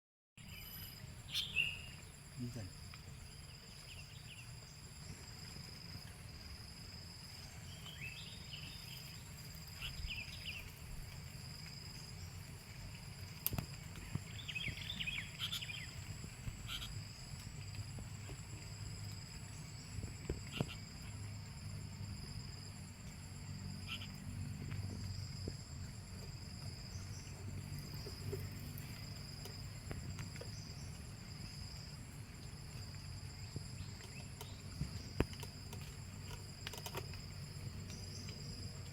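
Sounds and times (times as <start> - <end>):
bird chirps: 0.4 - 2.1, 14.0 - 16.0, 16.6 - 17.0.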